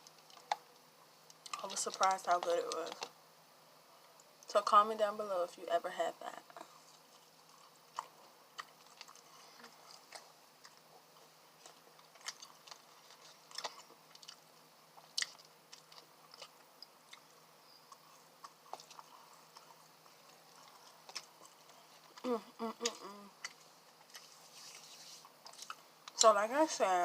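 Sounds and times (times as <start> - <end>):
chewing and biting food: 6.6 - 26.2
wet mouth clicks and crunches: 11.6 - 17.3.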